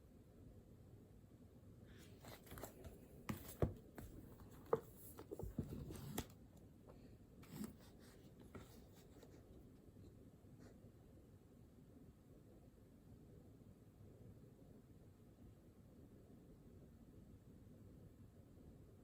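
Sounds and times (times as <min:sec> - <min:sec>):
paper rustling: 0:02.0 - 0:06.4.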